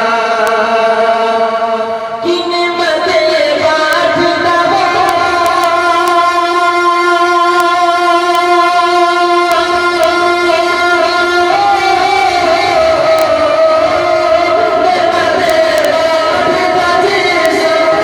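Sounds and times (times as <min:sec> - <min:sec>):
man singing: 0:00.0 - 0:18.0
musical backing: 0:03.7 - 0:18.0.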